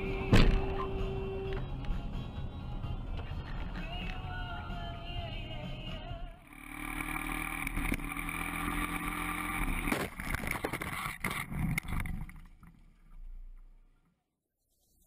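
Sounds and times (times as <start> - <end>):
motorcycle engine running: 6.4 - 12.3.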